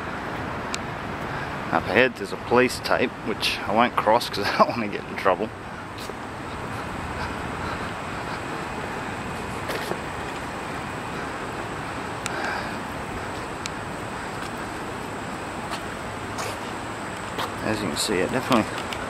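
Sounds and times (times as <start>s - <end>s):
distant city traffic: 0.0s - 19.0s
faint clicks: 18.5s - 19.0s.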